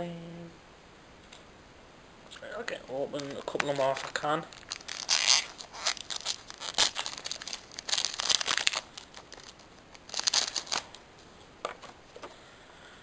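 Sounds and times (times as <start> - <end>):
foil wrapper crinkling and tearing: 3.1 - 11.0.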